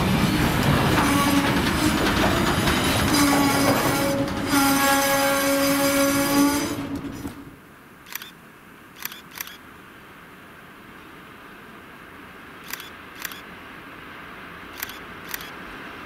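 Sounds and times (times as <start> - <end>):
freight train rolling past: 0.0 - 7.6
sharp clicks: 8.1 - 8.4, 9.0 - 9.6, 12.6 - 13.4, 14.8 - 15.6.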